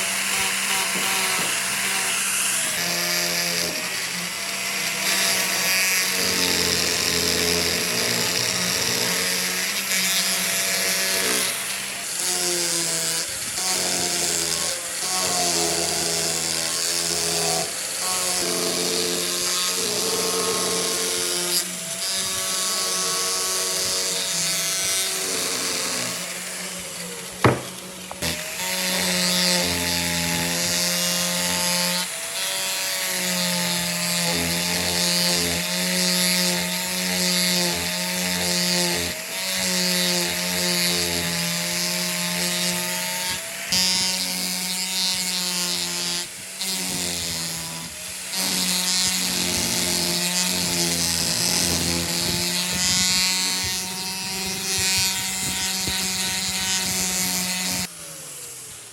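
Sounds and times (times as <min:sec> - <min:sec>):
power tool cutting wood: 0:00.0 - 0:58.9
sharp knock: 0:27.4 - 0:27.8.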